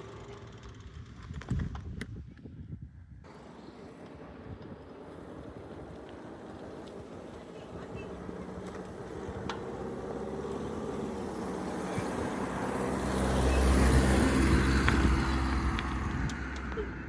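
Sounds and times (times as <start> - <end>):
vehicle passing by: 3.3 - 17.0.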